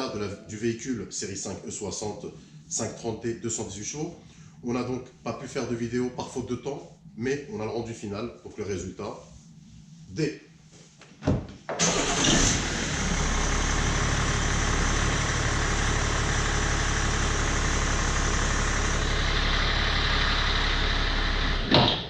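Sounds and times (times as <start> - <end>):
diesel engine starting and idling: 11.8 - 21.9.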